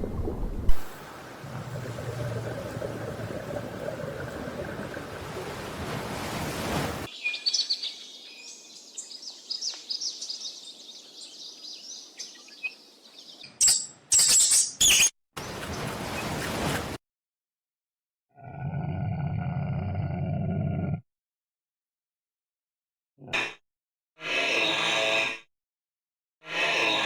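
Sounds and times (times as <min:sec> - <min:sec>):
birds chirping and twittering: 0:07.1 - 0:16.8.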